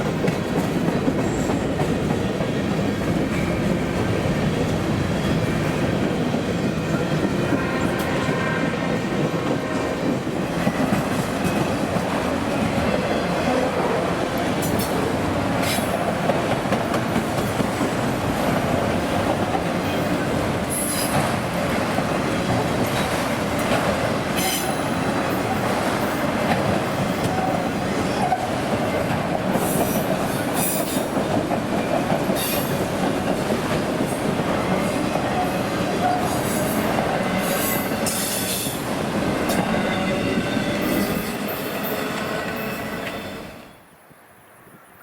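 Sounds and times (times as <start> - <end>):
freight train cars rolling: 0.0 - 43.9.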